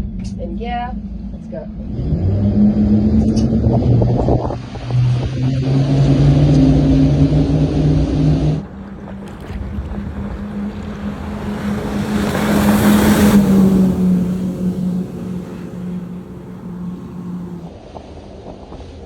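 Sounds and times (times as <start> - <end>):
outboard engines droning: 8.6 - 17.7
water and wind rushing: 8.7 - 17.7.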